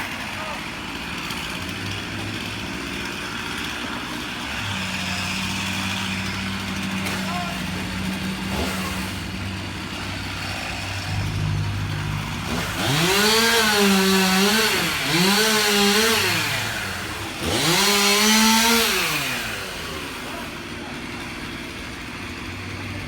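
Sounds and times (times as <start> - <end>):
chainsaw revving: 0.0 - 23.0
engine idling low: 3.8 - 17.8.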